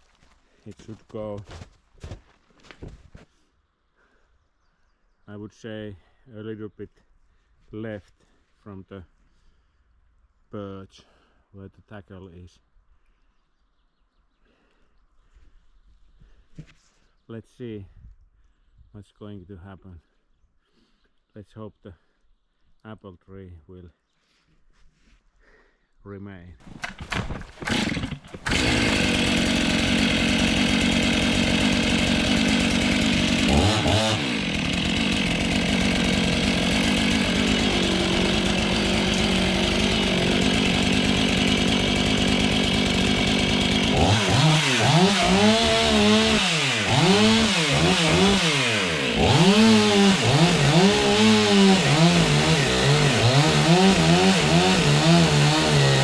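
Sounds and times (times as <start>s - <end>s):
chainsaw cutting wood: 26.6s - 56.0s.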